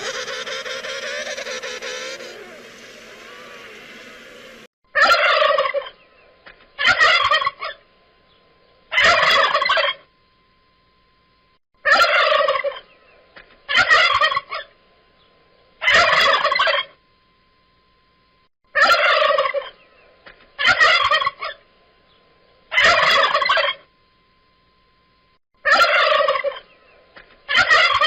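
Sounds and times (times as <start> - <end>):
turkey gobbling: 0.0 - 6.0, 6.8 - 7.8, 8.9 - 10.0, 11.8 - 12.9, 13.7 - 14.7, 15.8 - 17.0, 18.7 - 19.8, 20.6 - 21.6, 22.7 - 23.8, 25.6 - 26.7, 27.5 - 28.0.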